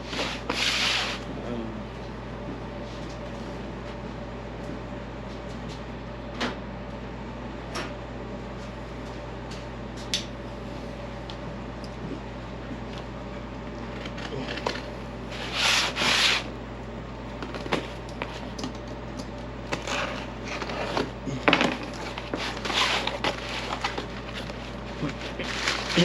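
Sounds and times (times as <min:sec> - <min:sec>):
packaging rubbing and rustling: 0:21.7 - 0:26.0.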